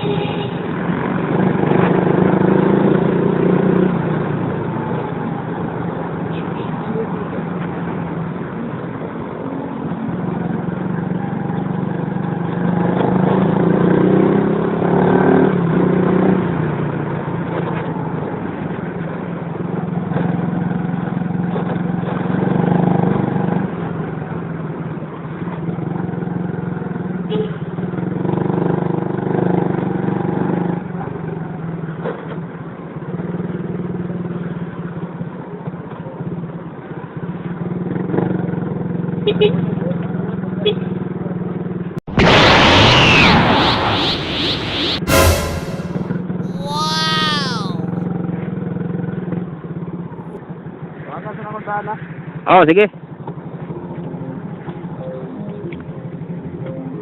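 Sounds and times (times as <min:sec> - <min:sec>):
road and wind noise: 0:00.0 - 0:22.6.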